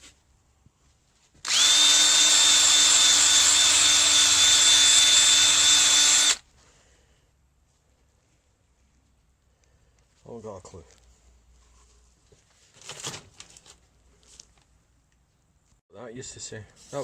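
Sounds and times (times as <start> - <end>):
power tool wire brush spinning: 1.4 - 6.4.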